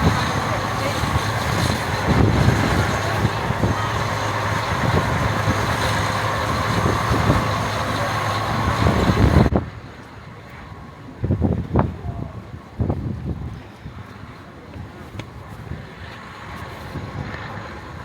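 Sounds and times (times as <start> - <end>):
train rumbling and clattering: 0.0 - 9.5.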